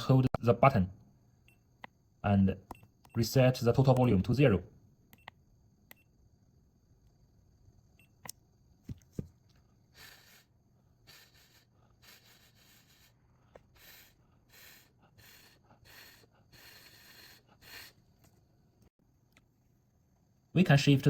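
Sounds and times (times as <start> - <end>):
faint breathy hisses: 9.8 - 18.1.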